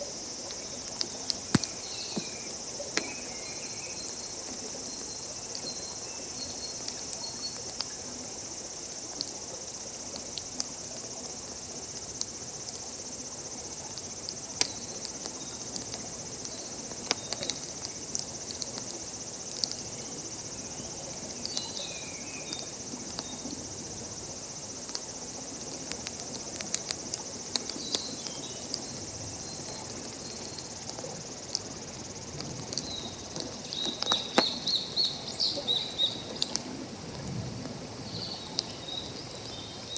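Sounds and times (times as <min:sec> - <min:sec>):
insect chorus: 0:00.0 - 0:39.9
campfire crackling and popping: 0:00.5 - 0:04.1, 0:13.8 - 0:19.9, 0:24.8 - 0:31.7, 0:32.3 - 0:34.7, 0:36.3 - 0:37.8.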